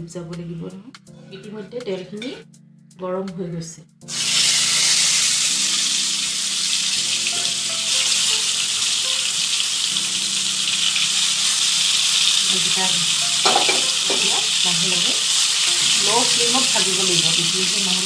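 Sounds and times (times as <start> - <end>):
food sizzling in hot oil: 4.1 - 18.0.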